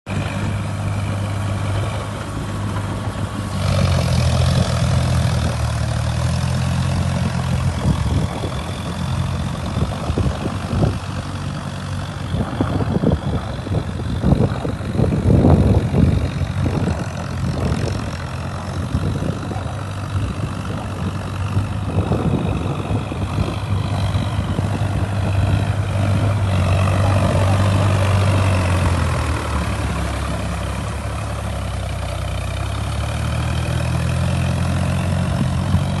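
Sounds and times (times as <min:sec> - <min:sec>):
engine idling: 0:00.1 - 0:36.0.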